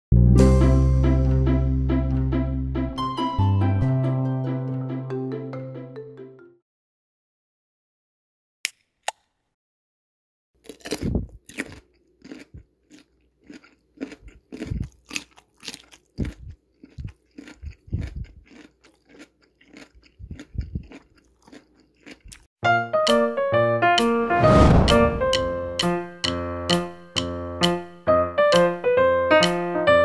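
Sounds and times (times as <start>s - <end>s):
crunchy chewing: 10.6s - 22.5s.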